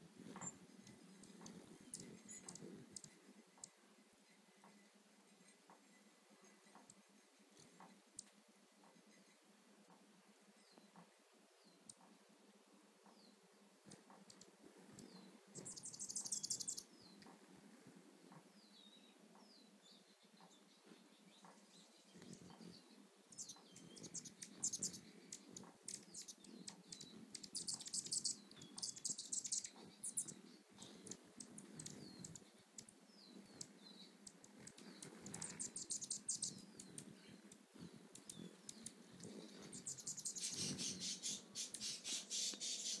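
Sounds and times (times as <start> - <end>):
hummingbird wings humming: 0.0 - 43.0
hummingbird chip calls: 0.4 - 3.8, 15.0 - 17.2, 21.5 - 32.9, 33.5 - 37.3, 38.1 - 43.0.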